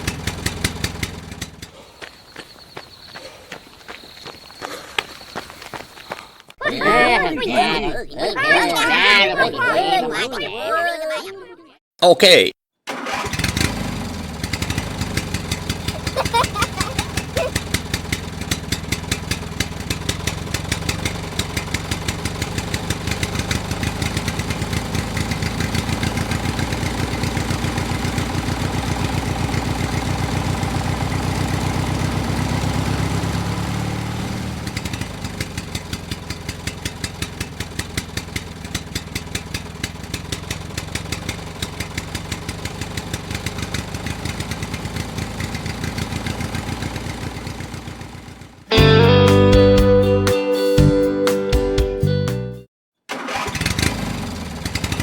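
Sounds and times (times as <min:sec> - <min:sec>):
small tractor engine running: 0:00.0 - 0:02.8, 0:12.9 - 0:48.7, 0:53.1 - 0:55.0.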